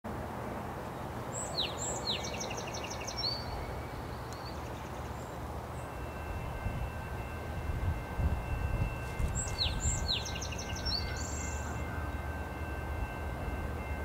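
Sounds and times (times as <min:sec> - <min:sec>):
low outdoor background noise: 0:00.1 - 0:14.0
songbird singing: 0:00.9 - 0:07.3, 0:08.5 - 0:12.8.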